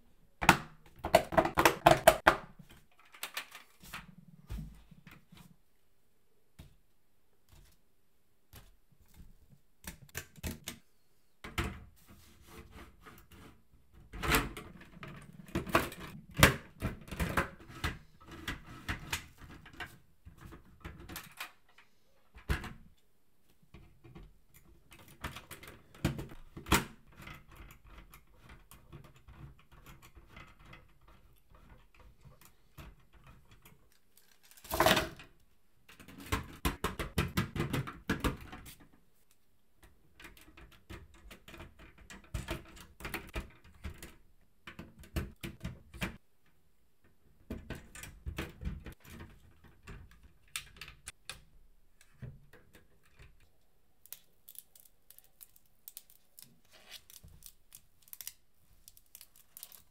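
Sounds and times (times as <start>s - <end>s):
plastic parts clicking: 0.4s - 3.8s, 47.5s - 59.9s.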